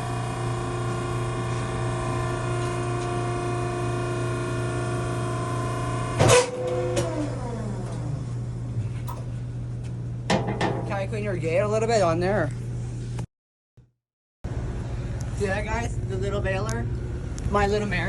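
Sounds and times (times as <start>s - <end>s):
hydraulic pump humming and whining: 0.0s - 13.2s, 14.5s - 18.0s
loud metal clank: 10.3s - 11.0s.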